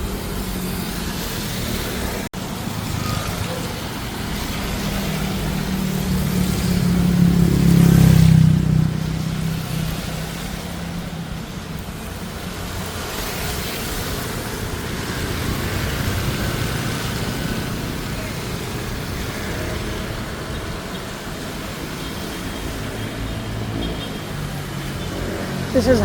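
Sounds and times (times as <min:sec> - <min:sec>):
street traffic: 0:00.0 - 0:26.0
vehicle engine passing close: 0:00.6 - 0:11.2.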